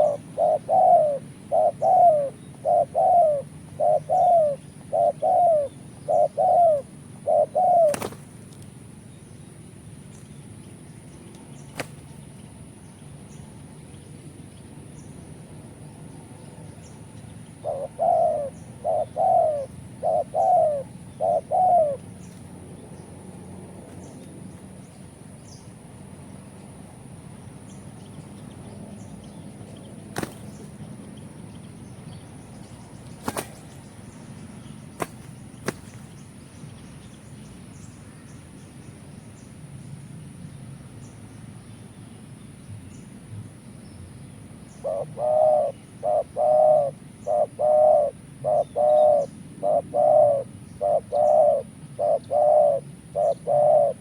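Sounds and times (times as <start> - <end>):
dove cooing: 0.0 - 8.1, 17.6 - 22.1, 44.8 - 54.0.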